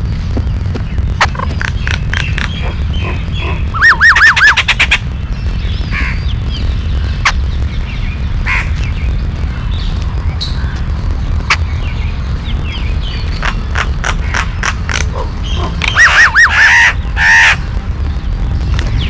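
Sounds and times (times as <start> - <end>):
birds calling: 0.0 - 19.0
steady low rumble: 0.0 - 19.0
harsh bird call notes: 0.9 - 9.0, 12.7 - 17.6.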